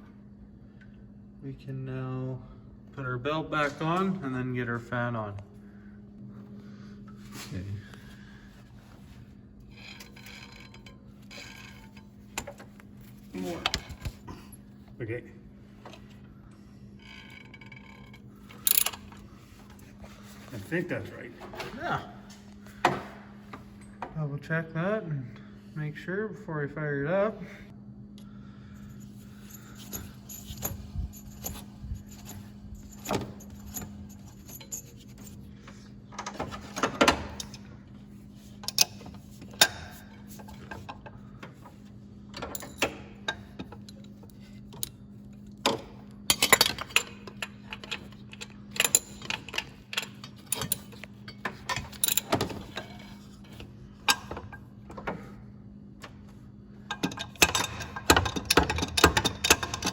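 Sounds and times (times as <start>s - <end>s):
steady low hum: 0.0s - 59.9s
metal tools clinking: 17.0s - 19.2s, 29.0s - 35.5s, 45.6s - 54.6s, 56.9s - 59.9s.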